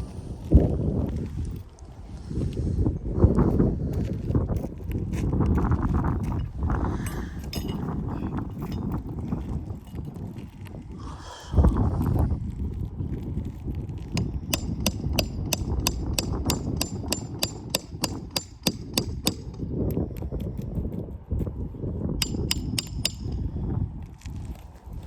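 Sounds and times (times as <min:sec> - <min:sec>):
steady low rumble: 0:00.0 - 0:25.0
hammer tapping metal: 0:07.1 - 0:08.0, 0:14.2 - 0:19.6, 0:22.2 - 0:23.5.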